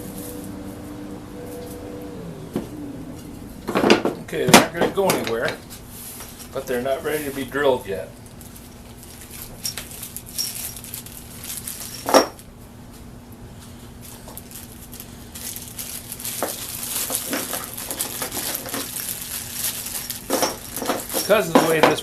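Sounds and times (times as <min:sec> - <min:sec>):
rustling: 0:00.0 - 0:04.4, 0:08.2 - 0:12.2, 0:12.9 - 0:21.8
faint steady hum: 0:00.0 - 0:22.0.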